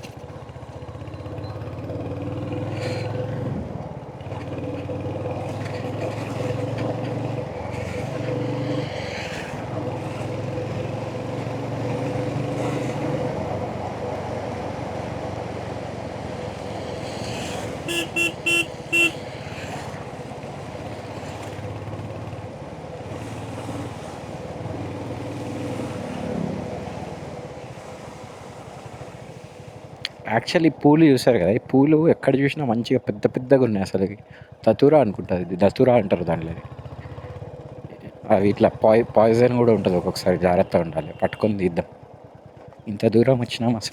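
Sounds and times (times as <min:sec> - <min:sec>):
motorcycle engine running: 0:00.0 - 0:30.2, 0:34.2 - 0:42.9
horn toots: 0:17.8 - 0:19.2.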